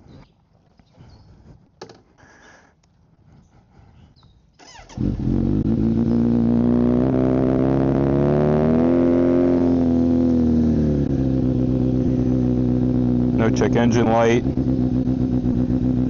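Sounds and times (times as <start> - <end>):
motorcycle engine idling: 9.4 - 16.0.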